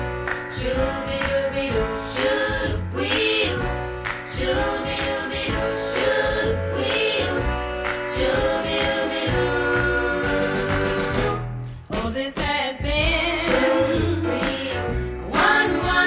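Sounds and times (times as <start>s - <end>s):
pop song with band: 0.4s - 16.0s.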